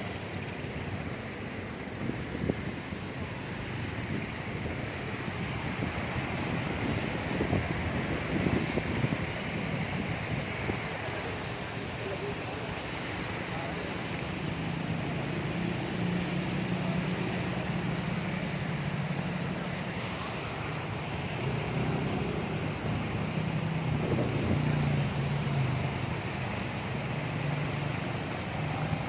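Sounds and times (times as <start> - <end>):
floodwater rushing: 0.0 - 29.0
low engine hum: 0.0 - 29.0
wind on microphone: 1.7 - 11.6, 14.0 - 29.0.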